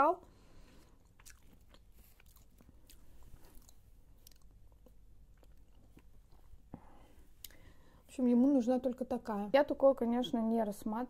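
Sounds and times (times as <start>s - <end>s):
faint close-up chewing: 0.5s - 7.7s.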